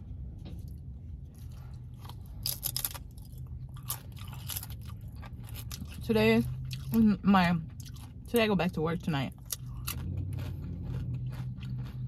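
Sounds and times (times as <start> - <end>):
steady low hum: 0.0 - 12.0
person chewing food: 0.6 - 7.0, 7.6 - 8.3, 9.3 - 12.0
crisp crunching bites: 2.1 - 6.0, 9.4 - 12.0.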